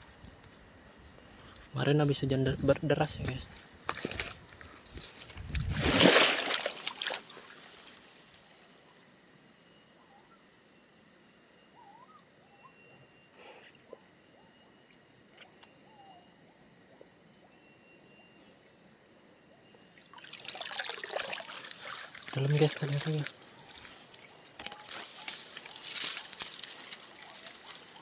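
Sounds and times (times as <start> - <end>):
stream water trickling: 5.0 - 8.7, 19.9 - 28.0
high insect buzzing: 19.9 - 28.0.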